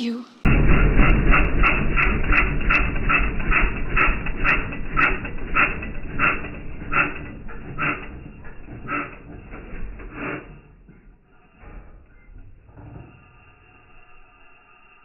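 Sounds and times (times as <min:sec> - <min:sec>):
dog panting: 0:03.0 - 0:10.4.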